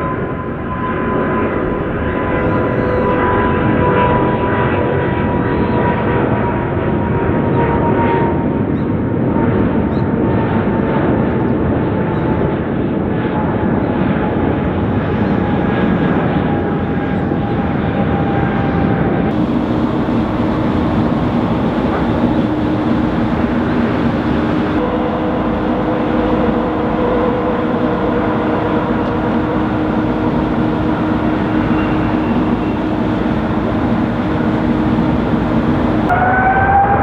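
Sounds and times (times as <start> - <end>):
jet engines roaring: 0.9 - 3.8, 19.3 - 36.2
steady tone: 1.3 - 3.7, 19.3 - 36.1.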